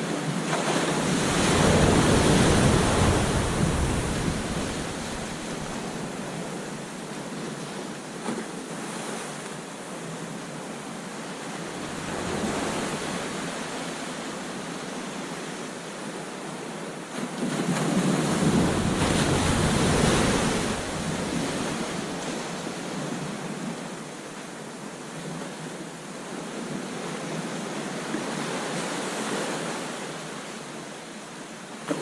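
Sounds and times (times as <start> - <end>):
waves breaking on beach: 0.0 - 32.0
wind rumble on microphone: 0.1 - 8.5, 11.1 - 16.7, 17.3 - 24.5.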